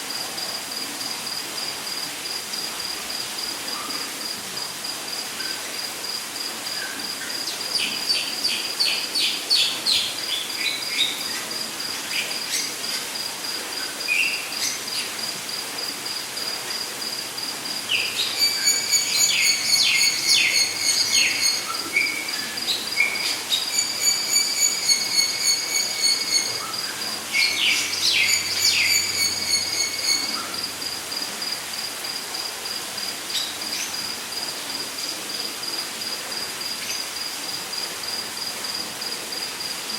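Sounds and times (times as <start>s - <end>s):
insect trilling: 7.0s - 31.6s.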